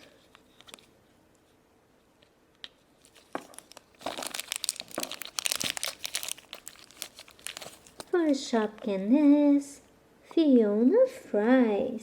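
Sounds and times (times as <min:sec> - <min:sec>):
plastic wrapper crinkling and tearing: 0:03.0 - 0:08.9.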